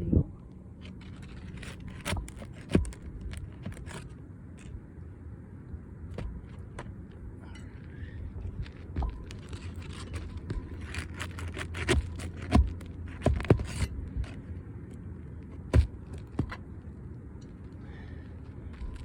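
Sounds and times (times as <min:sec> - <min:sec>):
hand tools scraping and clicking: 0:08.6 - 0:14.4.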